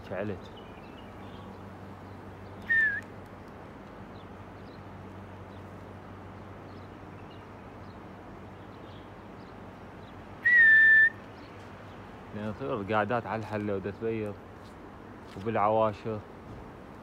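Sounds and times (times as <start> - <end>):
faint bird chirps: 0.3 - 3.1
person whistling: 2.7 - 3.0, 10.4 - 11.2.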